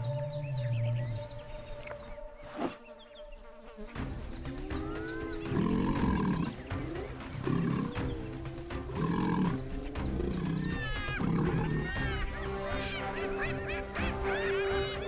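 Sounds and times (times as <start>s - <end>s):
hyenas whooping: 4.5s - 15.0s
growls and snarls: 4.6s - 12.0s.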